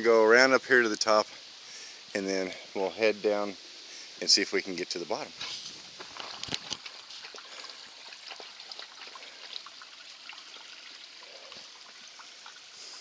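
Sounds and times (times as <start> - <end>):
water trickling over rock: 5.3 - 13.0.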